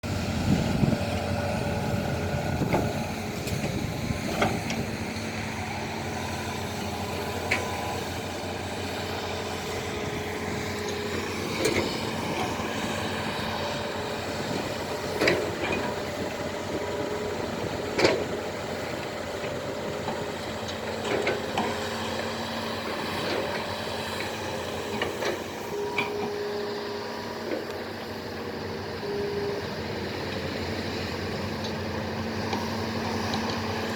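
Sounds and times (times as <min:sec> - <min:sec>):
diesel engines running: 0:00.0 - 0:33.9.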